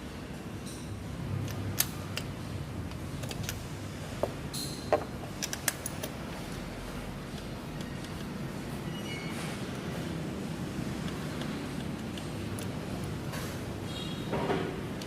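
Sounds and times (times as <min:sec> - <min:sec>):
metallic clicks of hand tools: 0:04.6 - 0:06.2.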